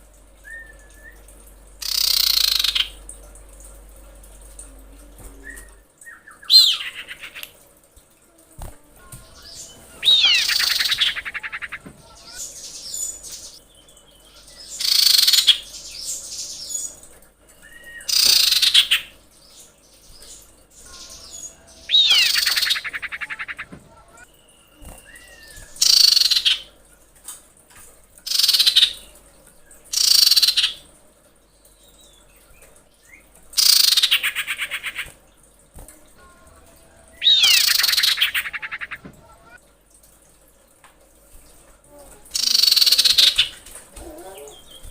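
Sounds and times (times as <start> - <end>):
bird rattling high calls: 1.8 - 3.0, 9.4 - 13.6, 14.6 - 15.8, 20.8 - 23.7, 37.2 - 39.6, 42.4 - 43.6.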